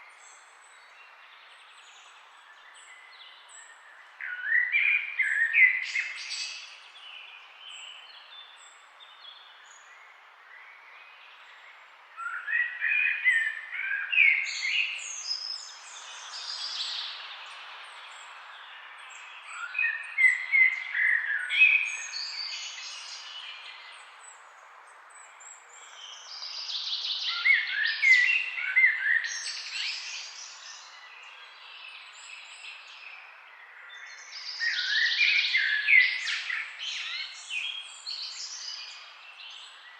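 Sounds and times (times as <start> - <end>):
birds chirping and trilling: 25.1 - 39.9.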